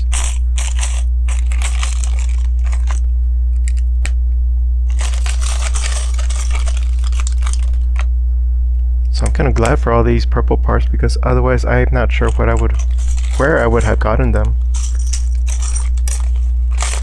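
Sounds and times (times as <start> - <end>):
plastic pieces rustling: 0.0 - 3.8, 4.9 - 8.1, 12.1 - 17.0
low electrical hum: 0.0 - 17.0.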